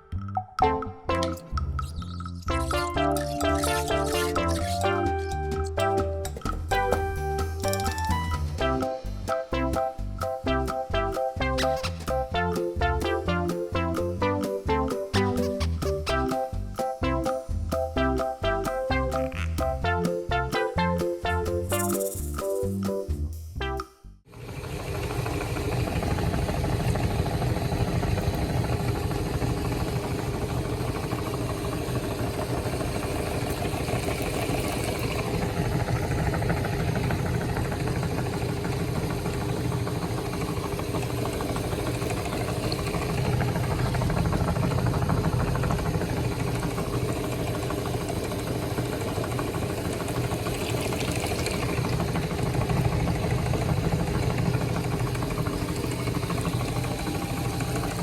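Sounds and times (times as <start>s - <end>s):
electric meat grinder running: 24.3s - 58.0s.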